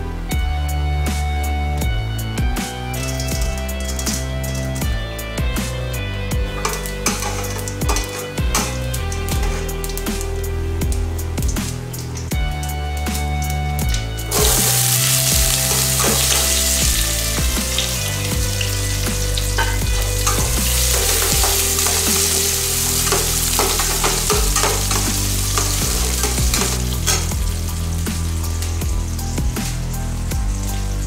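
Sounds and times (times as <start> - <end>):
background music: 0.0 - 31.0
shallots sizzling in oil: 2.4 - 31.0
spatula scraping metal pan: 6.6 - 9.9, 19.4 - 27.5.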